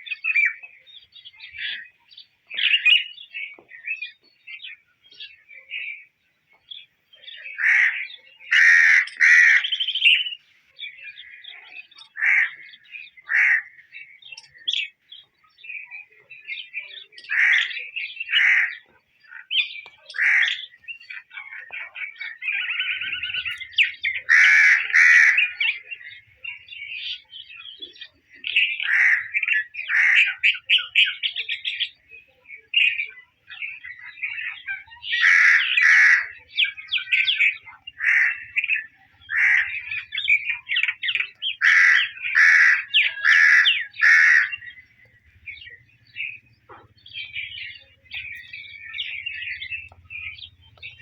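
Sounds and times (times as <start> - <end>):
soft bird chirps: 0.0 - 51.0
bird calling harshly: 7.4 - 10.4, 11.3 - 14.6, 17.2 - 31.7, 34.0 - 51.0.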